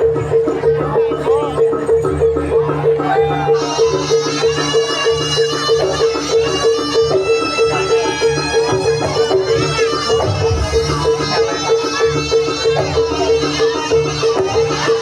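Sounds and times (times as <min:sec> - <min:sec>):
violin-like melody: 0:03.6 - 0:15.0
steady beat: 0:09.2 - 0:12.4
fast repeating bass pattern: 0:10.1 - 0:11.9.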